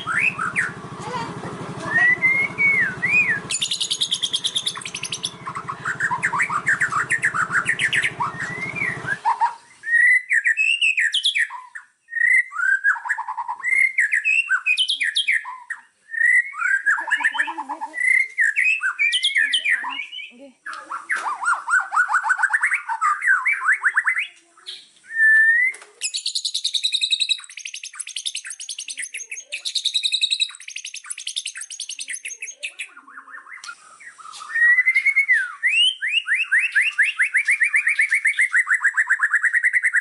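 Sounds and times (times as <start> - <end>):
low buzz: 0.0 - 9.2
songbird singing: 0.0 - 40.0.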